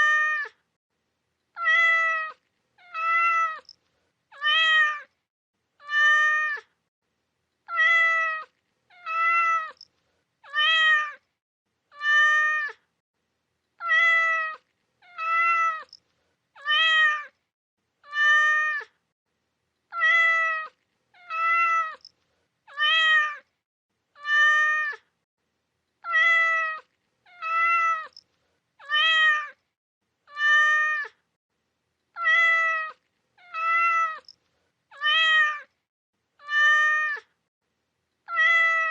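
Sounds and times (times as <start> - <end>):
cat meowing: 1.5 - 5.1, 5.8 - 6.7, 7.6 - 11.2, 11.9 - 12.9, 13.8 - 16.0, 16.6 - 17.4, 18.0 - 19.0, 19.9 - 22.1, 22.7 - 23.5, 24.2 - 25.0, 26.0 - 28.2, 28.8 - 29.6, 30.3 - 31.2, 32.1 - 34.3, 34.9 - 35.8, 36.4 - 37.4, 38.2 - 38.9.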